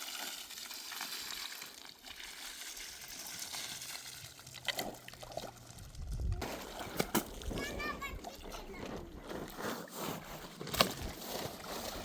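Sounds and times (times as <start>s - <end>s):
water trickling: 0.0s - 6.9s.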